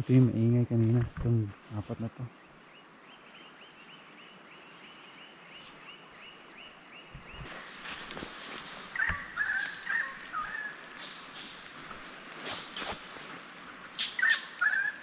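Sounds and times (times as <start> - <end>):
harsh bird calls: 1.8 - 13.2, 13.9 - 15.0
rapid high bird chirps: 5.2 - 13.0, 13.9 - 15.0.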